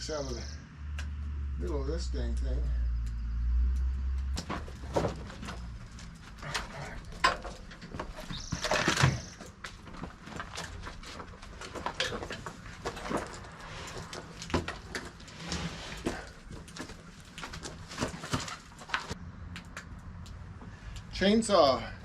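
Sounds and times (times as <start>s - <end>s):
knocks and clunks: 4.2s - 19.2s
scraping squeak: 8.0s - 9.5s.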